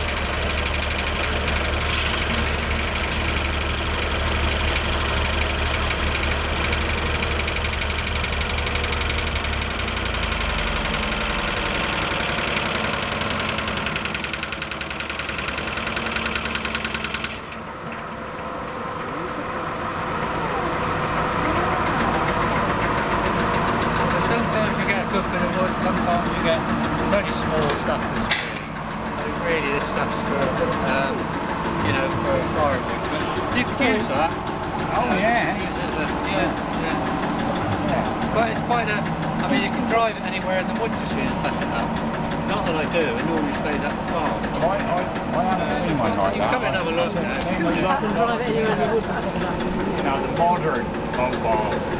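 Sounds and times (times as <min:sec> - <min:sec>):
saw cutting timber: 0:00.0 - 0:17.6
sawmill engine running: 0:00.0 - 0:51.9.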